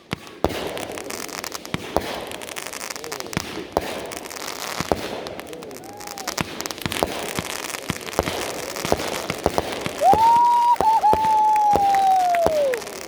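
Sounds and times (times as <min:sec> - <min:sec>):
fireworks bangs and pops: 0:00.0 - 0:13.0
loud high firework whistle: 0:09.8 - 0:13.0.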